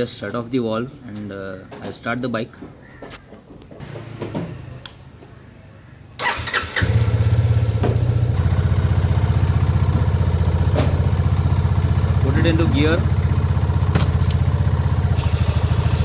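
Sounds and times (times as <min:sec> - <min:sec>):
motorcycle engine starting and idling: 0:06.2 - 0:16.0.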